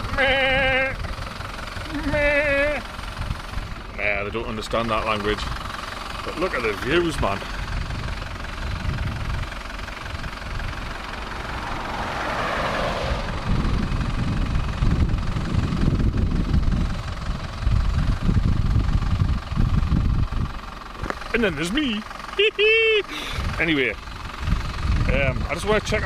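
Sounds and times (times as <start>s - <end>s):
wind buffeting microphone: 0.0s - 4.0s, 7.1s - 21.2s, 23.4s - 26.0s
vehicle rushing past: 10.2s - 15.1s.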